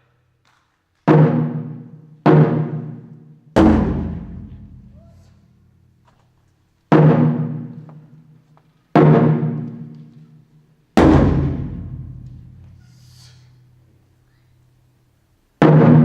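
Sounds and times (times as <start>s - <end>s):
taiko drum booms: 1.1s - 5.8s, 6.9s - 8.3s, 9.0s - 9.9s, 11.0s - 12.9s, 15.6s - 16.0s.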